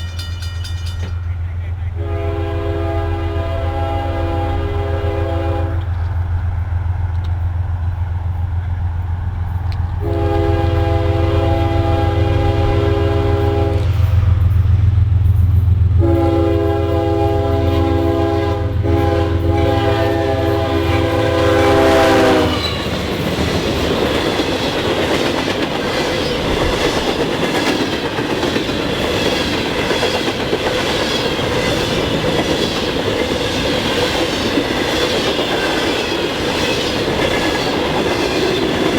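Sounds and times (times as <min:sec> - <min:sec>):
train wheels clattering on rails: 0:00.0 - 0:02.3, 0:05.6 - 0:38.9
locomotive engine drone: 0:00.0 - 0:38.9
locomotive horn blasts: 0:01.6 - 0:06.2, 0:09.5 - 0:14.5, 0:15.9 - 0:22.9.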